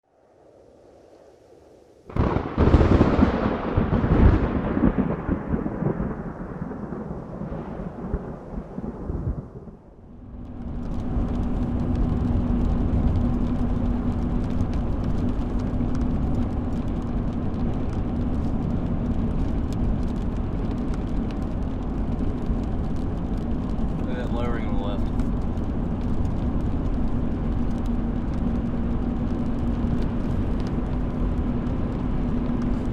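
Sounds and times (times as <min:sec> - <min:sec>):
thunderclap rumbling: 0:02.1 - 0:32.9
rain ticking on car: 0:02.2 - 0:32.9
vehicle road noise: 0:09.9 - 0:32.9.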